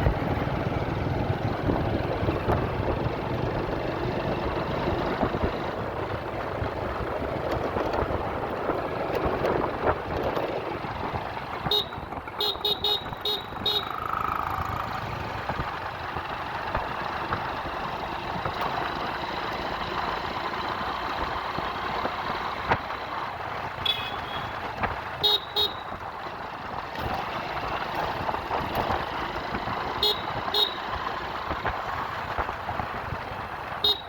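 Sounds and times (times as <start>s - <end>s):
road traffic noise: 0.0s - 34.0s
vehicle horn tooting: 11.6s - 14.0s, 23.8s - 24.6s, 25.2s - 25.9s, 30.0s - 30.9s, 33.8s - 34.0s.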